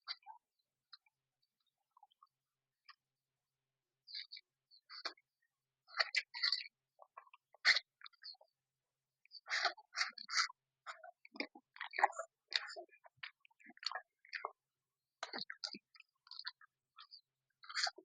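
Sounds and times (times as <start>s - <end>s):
person chewing with mouth clicks: 11.3s - 14.4s, 15.2s - 18.0s.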